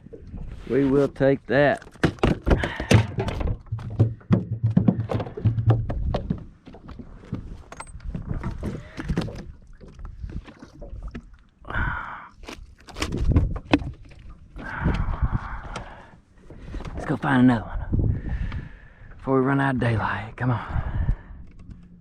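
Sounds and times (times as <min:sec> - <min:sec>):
knocks and thunks of handling gear: 0:01.8 - 0:09.5, 0:12.9 - 0:14.1.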